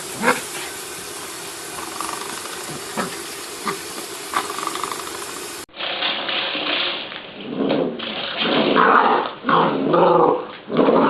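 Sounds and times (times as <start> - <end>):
steady hiss: 0.0 - 5.7.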